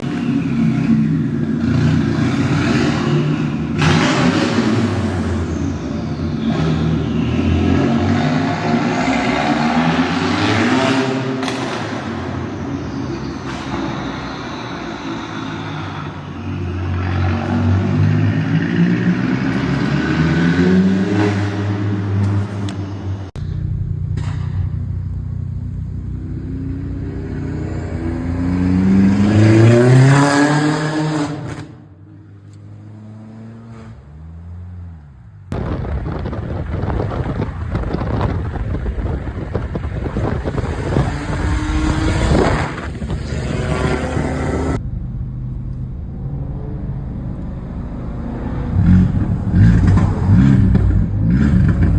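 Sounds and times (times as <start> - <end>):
car engine revving: 0.0 - 31.9, 32.5 - 51.9
wind noise: 35.5 - 44.8.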